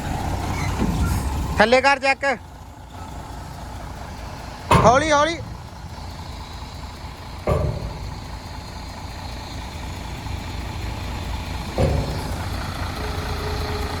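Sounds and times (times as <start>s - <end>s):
truck engine rumbling: 0.0s - 14.0s
loud thumps: 3.7s - 10.0s, 11.5s - 14.0s.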